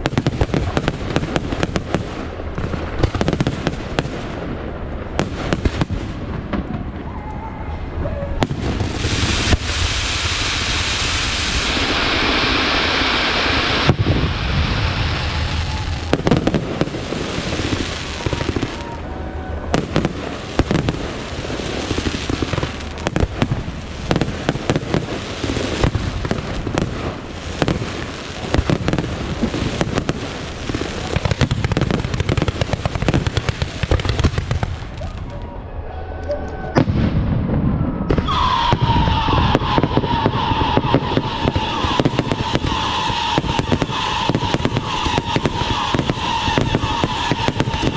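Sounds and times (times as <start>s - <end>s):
fireworks bangs and crackling pops: 0.0s - 7.1s, 8.4s - 19.0s, 19.7s - 35.4s, 36.8s - 47.9s
fireworks crackling hiss: 8.4s - 19.0s, 19.8s - 35.2s, 38.2s - 47.9s.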